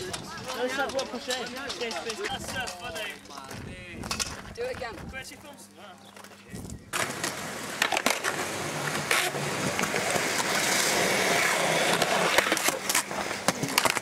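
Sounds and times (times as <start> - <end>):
skateboard wheels rolling on concrete: 0.0 - 5.4, 6.1 - 14.0
skateboard deck clacks: 6.3 - 14.0.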